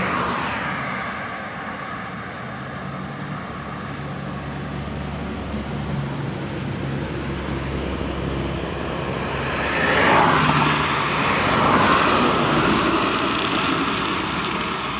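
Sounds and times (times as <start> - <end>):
bus engine humming: 1.6 - 14.9
loud rushing noise: 6.7 - 14.9.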